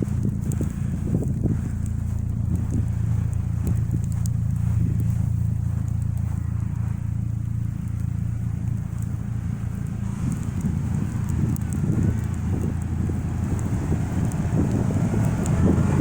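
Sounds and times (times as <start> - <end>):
footsteps crunching through snow: 0.0 - 16.0
steady low rumble: 0.0 - 16.0.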